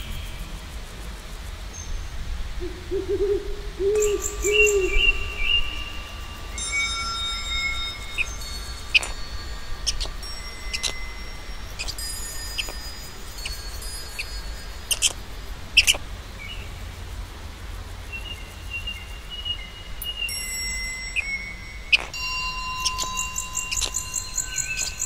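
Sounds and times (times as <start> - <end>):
birds chirping: 2.6 - 16.7, 21.1 - 25.0
whistled bird note: 3.8 - 14.3
ringing chime-like tones: 3.9 - 15.8, 20.0 - 25.0.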